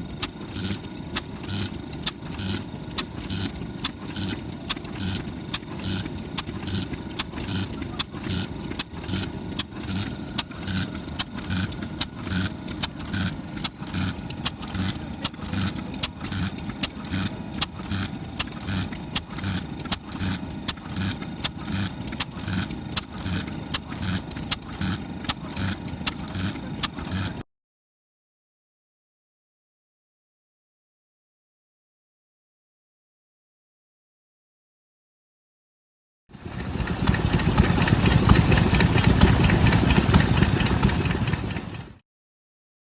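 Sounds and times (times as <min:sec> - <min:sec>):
stationary engine thumping: 0:00.1 - 0:27.4, 0:36.4 - 0:42.0.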